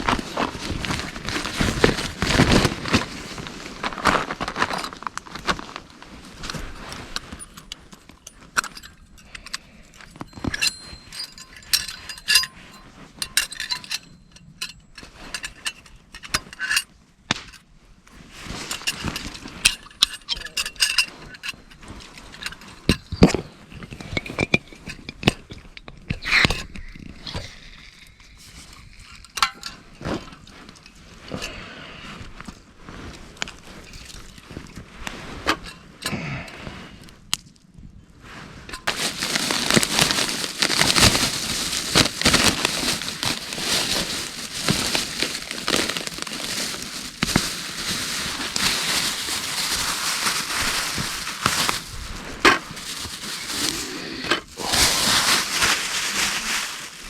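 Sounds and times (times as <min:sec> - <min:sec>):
small hard objects clinking: 0:06.4 - 0:16.7, 0:18.7 - 0:30.0, 0:38.7 - 0:57.0
short metallic rings: 0:10.3 - 0:15.0.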